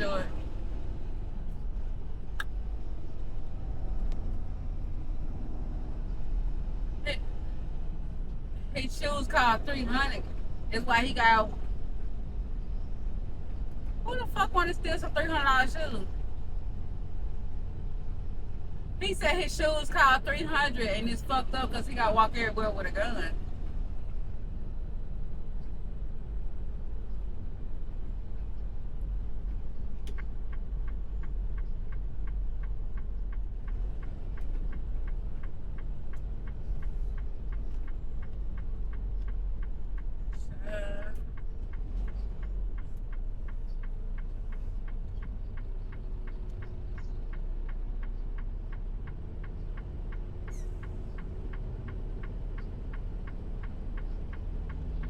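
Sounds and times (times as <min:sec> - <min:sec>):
truck engine low rumble: 0:00.0 - 0:55.0
rapid ticking: 0:27.7 - 0:40.5.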